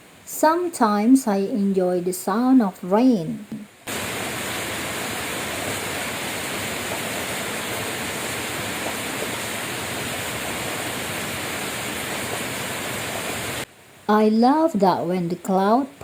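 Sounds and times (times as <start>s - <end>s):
steady rainfall: 3.0s - 16.0s.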